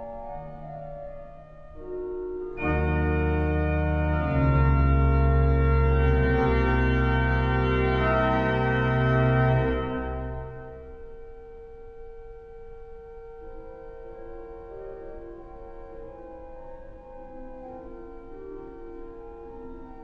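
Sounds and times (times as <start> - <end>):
organ playing sustained chords: 0.0 - 11.6.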